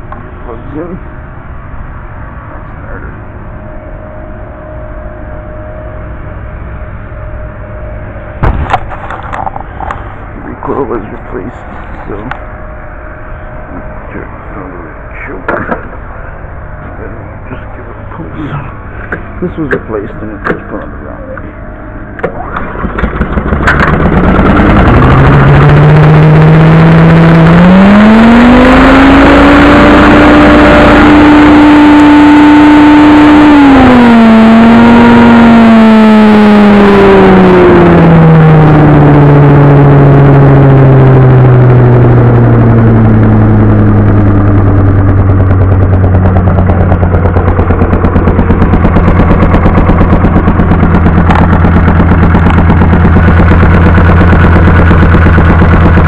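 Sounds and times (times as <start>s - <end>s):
small engine running: 16.8s - 56.0s.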